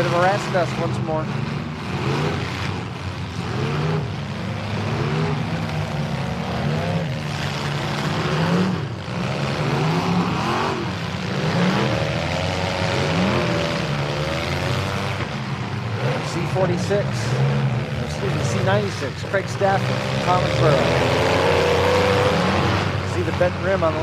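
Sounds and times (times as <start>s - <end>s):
truck engines revving: 0.0s - 24.0s.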